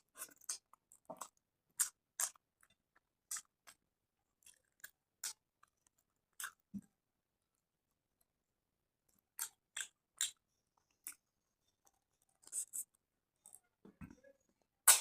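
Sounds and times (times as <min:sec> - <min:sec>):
mouth chewing food: 0:00.0 - 0:06.9, 0:09.1 - 0:13.7.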